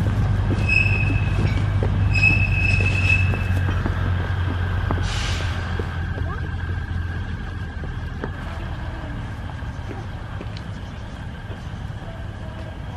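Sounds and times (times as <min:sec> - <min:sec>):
diesel locomotive engine rumble: 0:00.0 - 0:12.9
train wheels squealing: 0:00.5 - 0:03.9.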